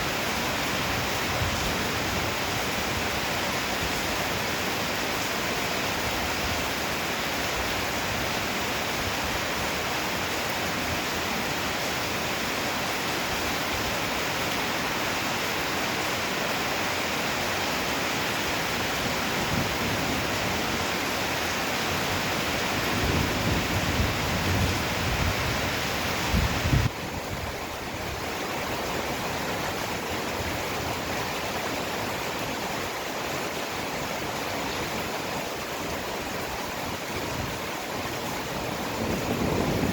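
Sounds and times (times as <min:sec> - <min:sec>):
heavy rain hissing: 0:38.4 - 0:39.9.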